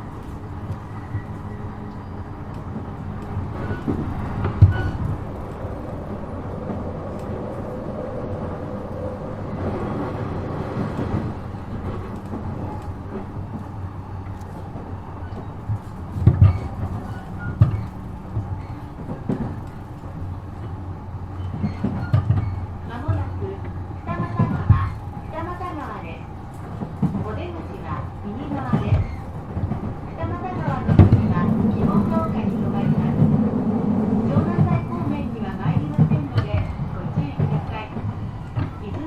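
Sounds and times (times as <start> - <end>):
electric train rumbling: 0.0 - 39.0
wheels thumping on track: 15.4 - 20.1, 21.6 - 26.0, 26.6 - 39.0.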